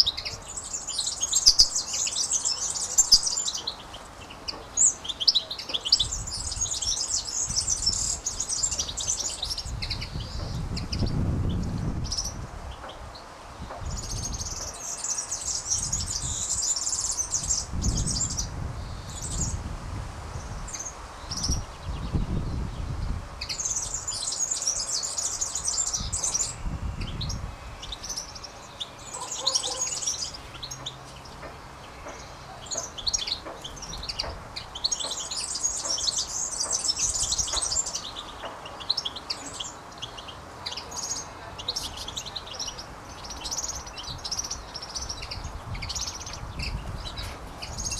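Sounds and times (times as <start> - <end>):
songbirds twittering and chirping: 0.0 - 47.9
low wind rumble: 4.0 - 35.4, 41.5 - 47.9.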